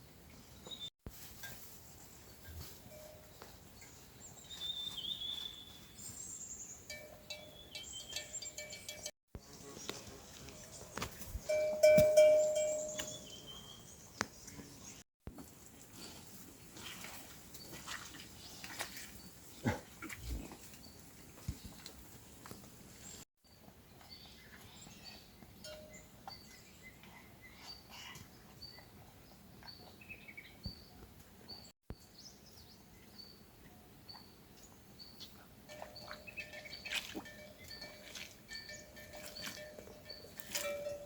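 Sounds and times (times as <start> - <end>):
outdoor background noise: 0.0 - 41.0
small bird chirping: 9.8 - 15.0.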